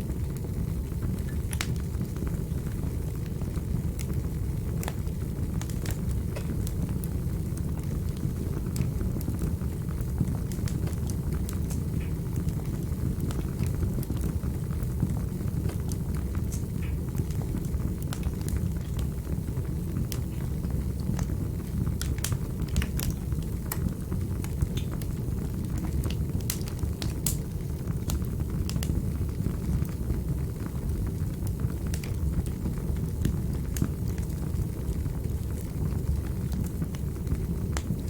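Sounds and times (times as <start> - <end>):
fireplace fire crackling: 0.0 - 38.0.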